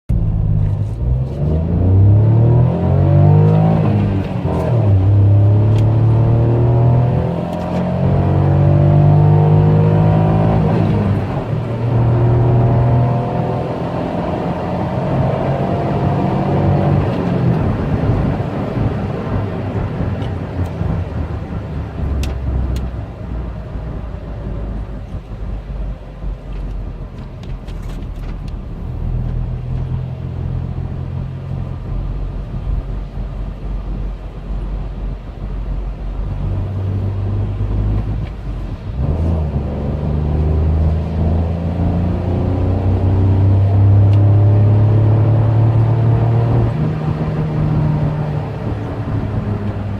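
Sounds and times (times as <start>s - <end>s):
car engine accelerating: 0.1s - 49.9s
road noise: 0.1s - 49.9s.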